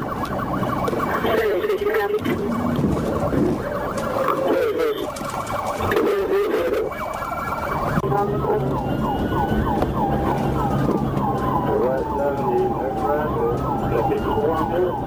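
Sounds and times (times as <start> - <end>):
police siren wailing and yelping: 0.0 - 15.0.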